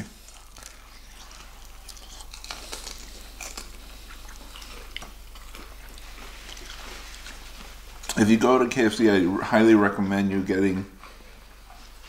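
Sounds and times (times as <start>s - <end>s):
person chewing crispy chicken: 0.1s - 8.2s.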